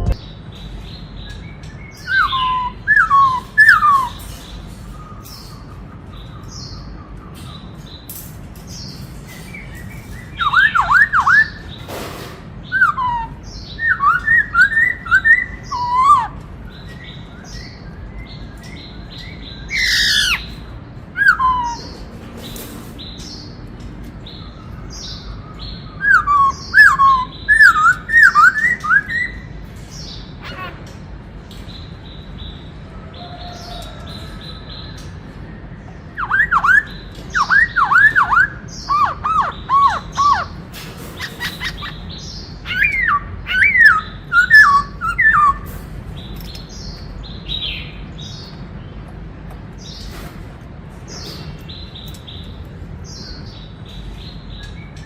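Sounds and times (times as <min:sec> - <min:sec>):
bird whistled song: 0:00.0 - 0:08.1, 0:08.8 - 0:11.9, 0:12.6 - 0:22.1, 0:24.2 - 0:30.2, 0:35.9 - 0:45.7.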